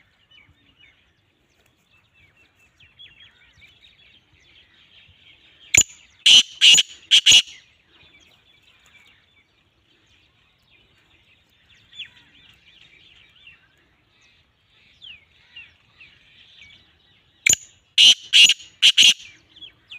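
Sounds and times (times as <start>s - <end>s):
small birds twittering: 0.0s - 19.9s
francolin calling harsh notes: 6.3s - 7.6s, 18.0s - 19.3s.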